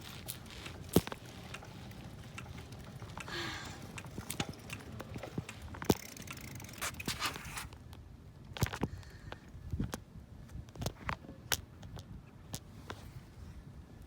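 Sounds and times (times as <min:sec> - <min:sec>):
bicycle clicks and rattles: 0:00.0 - 0:09.1
bicycle tyres and wind rumble: 0:00.0 - 0:14.0.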